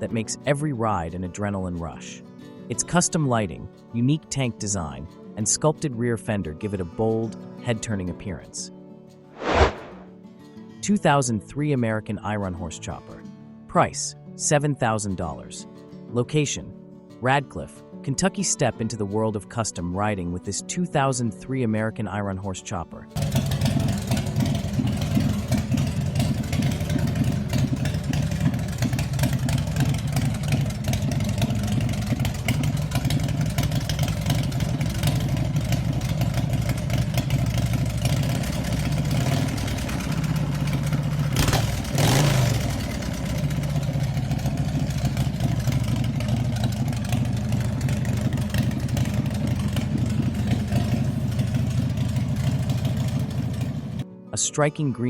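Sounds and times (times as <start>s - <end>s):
motorcycle engine pulsing idle: 23.2s - 54.0s.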